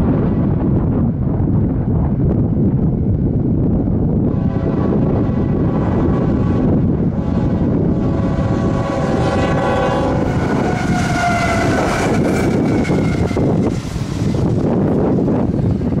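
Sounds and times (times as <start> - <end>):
freight locomotives rumbling past: 0.0 - 16.0
wind buffeting microphone: 0.0 - 16.0
train horn sounding: 4.3 - 14.4.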